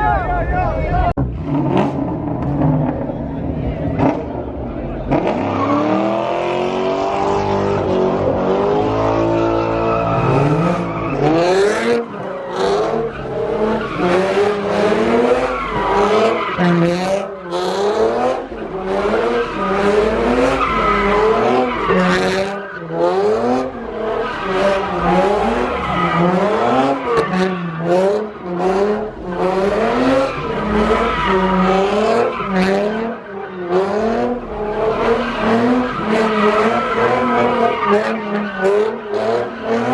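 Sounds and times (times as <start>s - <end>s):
car engine revving: 1.0s - 39.9s
tires skidding and squealing: 1.4s - 39.9s.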